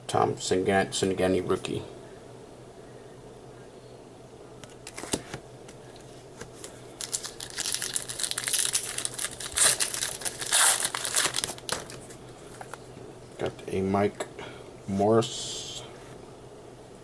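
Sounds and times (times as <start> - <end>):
foil wrapper tearing and crinkling: 6.6 - 12.8.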